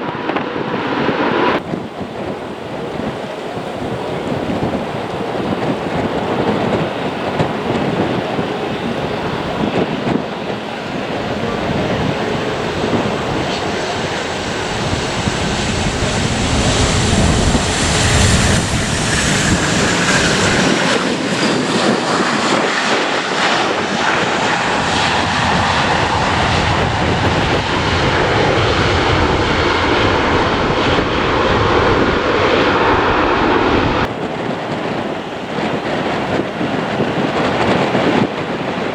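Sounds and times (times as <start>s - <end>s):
high jet engine whine: 0.0s - 38.9s
jet airliner passing: 0.0s - 38.9s
wind on microphone: 0.0s - 38.9s.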